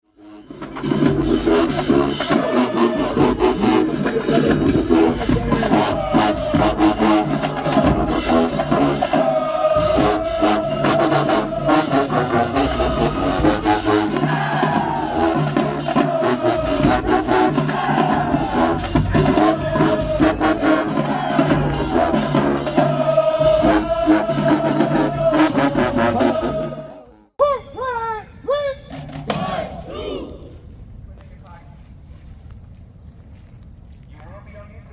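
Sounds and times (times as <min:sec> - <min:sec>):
marching band brass: 0:00.0 - 0:27.3, 0:28.9 - 0:30.7
marching drum strikes: 0:00.6 - 0:26.5, 0:28.9 - 0:30.4.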